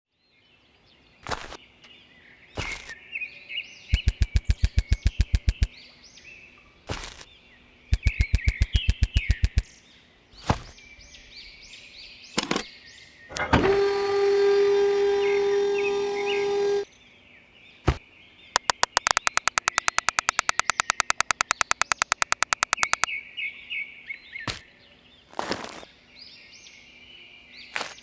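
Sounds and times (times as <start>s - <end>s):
birds chirping: 1.9s - 6.6s, 7.2s - 10.0s, 18.2s - 23.5s
rapid loud clicks: 4.0s - 5.7s, 8.0s - 9.6s, 18.6s - 23.1s.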